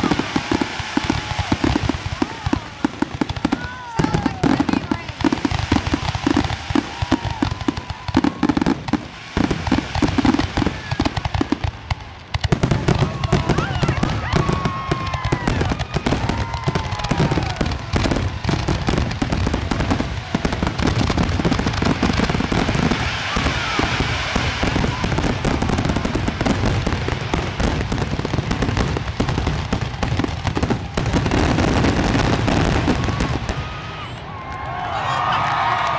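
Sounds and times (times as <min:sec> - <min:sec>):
fireworks bursts and crackling: 0:00.0 - 0:35.9.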